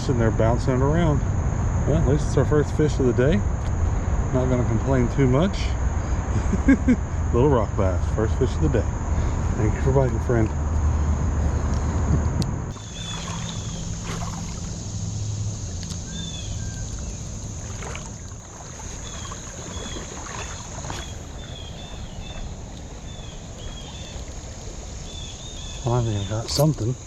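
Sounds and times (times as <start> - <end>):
insects droning: 0.0 - 27.0
water sloshing and splashing: 12.7 - 26.8.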